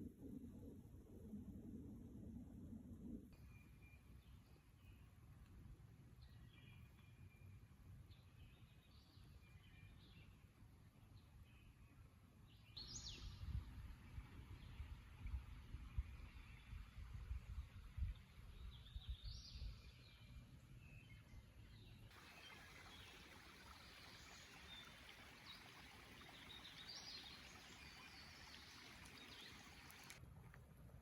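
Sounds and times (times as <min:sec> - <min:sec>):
soft woodland hiss: 0:22.1 - 0:30.2.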